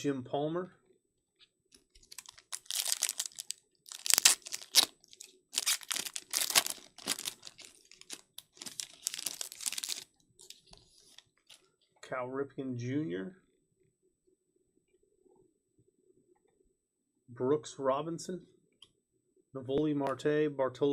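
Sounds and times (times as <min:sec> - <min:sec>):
cards being handled: 0:01.8 - 0:11.6
foil wrapper crinkling and tearing: 0:02.0 - 0:11.6.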